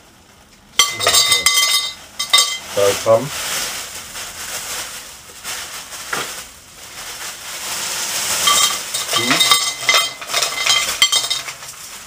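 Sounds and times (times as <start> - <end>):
stones clacking on ceramic and tin: 0.8 - 2.7, 8.4 - 11.6.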